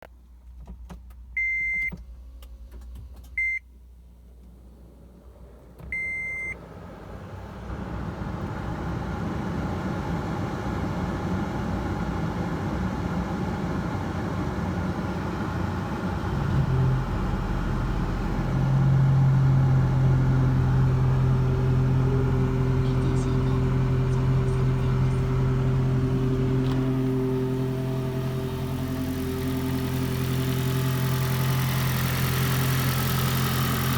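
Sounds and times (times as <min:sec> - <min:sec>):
car engine idling: 0:03.7 - 0:33.9.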